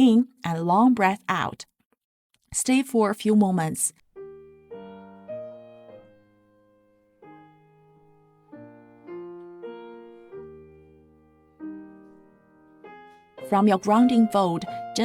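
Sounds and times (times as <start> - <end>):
soft piano chords: 4.1 - 15.0.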